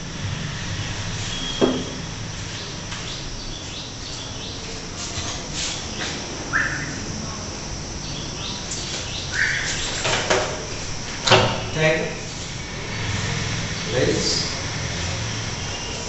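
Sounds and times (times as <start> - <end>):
steady background hiss: 0.0 - 16.0
birds chirping: 0.7 - 16.0.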